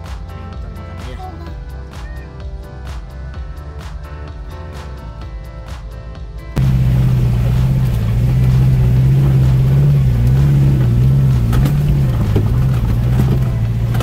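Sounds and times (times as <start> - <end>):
off-road vehicle engine revving: 6.6 - 14.0
water and mud sloshing: 6.8 - 14.0.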